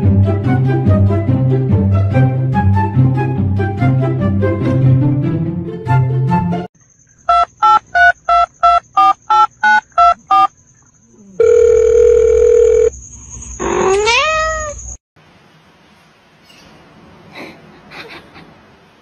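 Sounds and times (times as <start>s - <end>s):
phone keypad beeps: 7.3s - 10.5s
steady phone tone: 7.3s - 10.5s, 11.4s - 12.9s
cat meowing: 13.8s - 14.8s.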